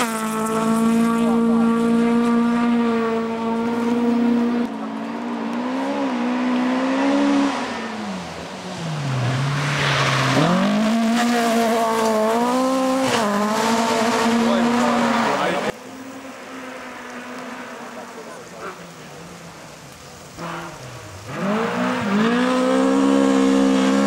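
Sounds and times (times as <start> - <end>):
rally car engine revving: 0.0 - 15.8, 20.4 - 24.0.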